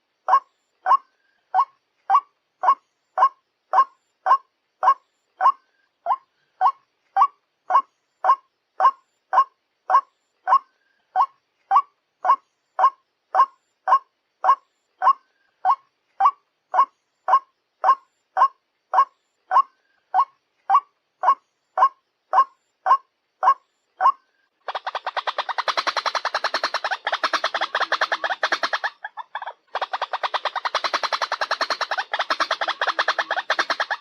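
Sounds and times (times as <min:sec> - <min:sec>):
waterhen calling: 0:19.0 - 0:34.0.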